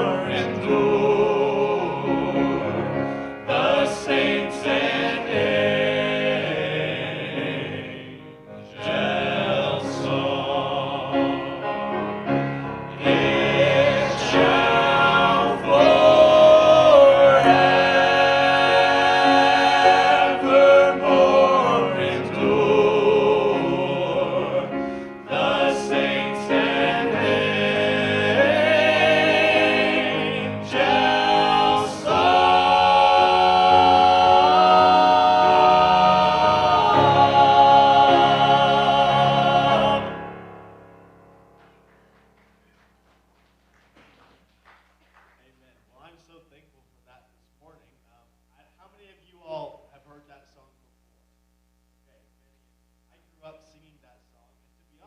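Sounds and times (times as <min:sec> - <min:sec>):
group singing in harmony: 0:00.0 - 0:40.8.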